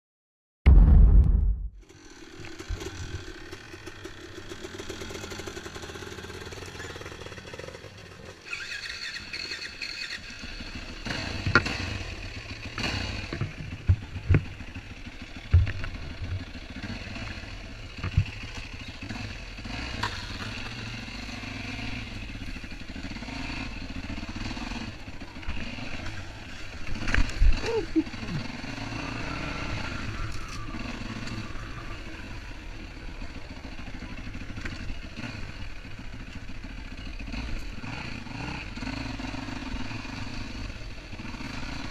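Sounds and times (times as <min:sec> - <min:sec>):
sharp cracks or knocks: 0:00.7 - 0:01.8
two-stroke motorbike engine running: 0:01.8 - 0:41.9.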